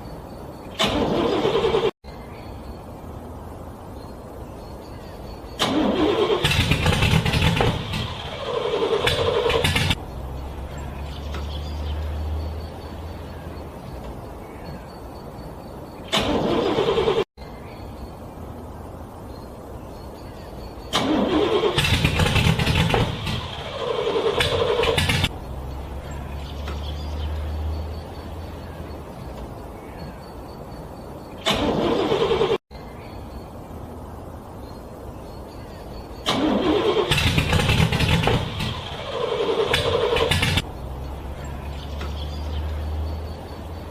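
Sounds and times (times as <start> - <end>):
car engine cranking: 0.7 - 2.0, 5.5 - 13.4, 16.0 - 17.3, 20.9 - 28.4, 31.4 - 32.6, 36.2 - 43.9.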